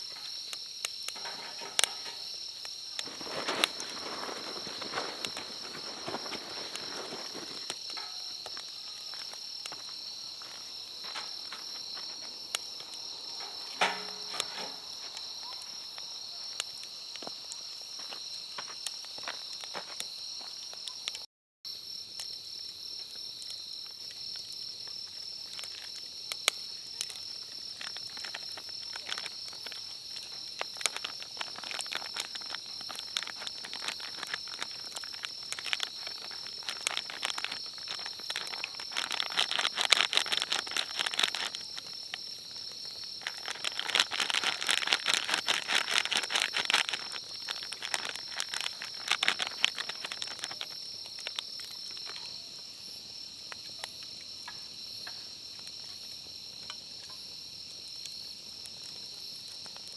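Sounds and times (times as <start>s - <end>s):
sharp clicks and crackles: 0.0s - 17.6s, 24.4s - 52.2s
insects chirring: 0.0s - 59.9s.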